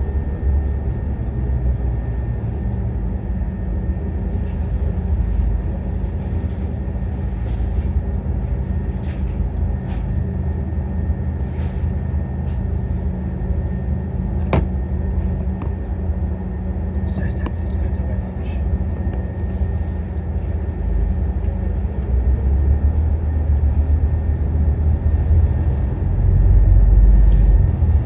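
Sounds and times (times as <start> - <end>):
bus diesel engine running: 0.0 - 28.0
rattles and knocks from bus body: 14.4 - 15.8.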